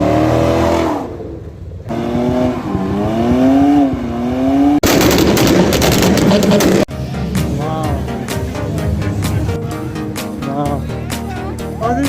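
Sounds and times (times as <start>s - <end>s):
car engine revving: 0.0s - 9.5s
loud noisy sound: 2.2s - 8.3s.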